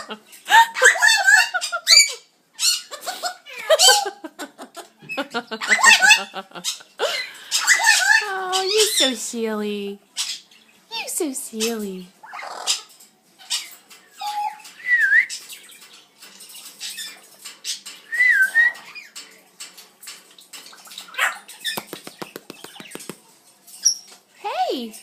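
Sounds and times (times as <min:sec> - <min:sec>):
parrot squawking and clicking: 0:20.6 - 0:23.2.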